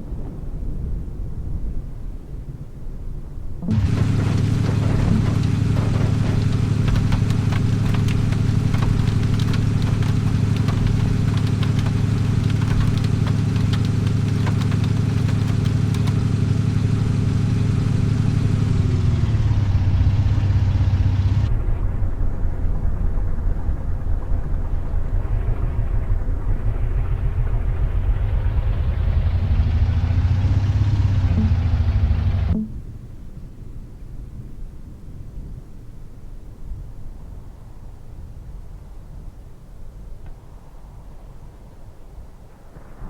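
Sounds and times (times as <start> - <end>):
dense hiss with crackle: 0.0 - 33.5, 36.5 - 43.0
vehicle engine running: 3.6 - 22.5, 23.5 - 32.8.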